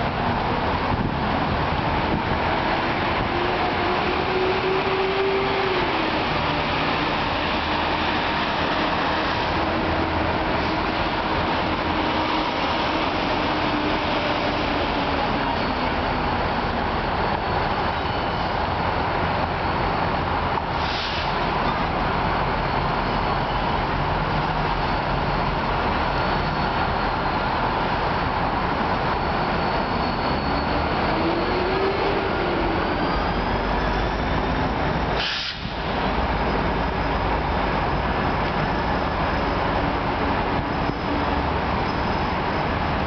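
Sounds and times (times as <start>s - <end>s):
diesel locomotives rumbling: 0.0s - 43.0s
brief hiss: 20.8s - 21.4s, 35.2s - 35.9s.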